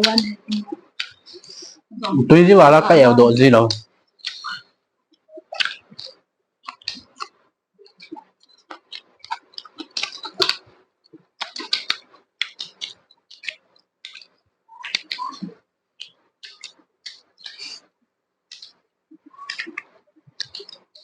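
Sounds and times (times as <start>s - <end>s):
person chewing and smacking food: 0.1s - 3.0s, 3.6s - 21.0s.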